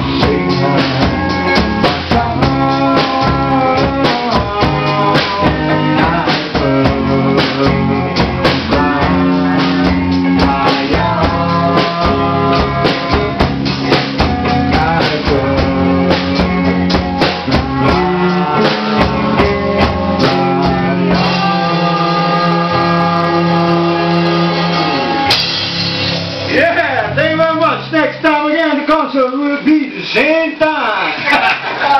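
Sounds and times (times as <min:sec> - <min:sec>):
person singing: 0:00.0 - 0:13.4, 0:14.4 - 0:25.4
electric guitar: 0:00.0 - 0:28.2
drum kit: 0:00.0 - 0:30.0.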